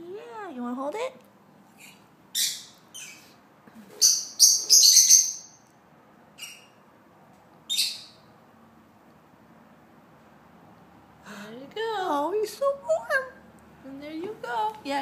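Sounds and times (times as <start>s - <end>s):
young birds chirping shrilly: 2.4s - 3.4s, 4.0s - 5.6s, 6.4s - 6.8s, 7.7s - 8.3s.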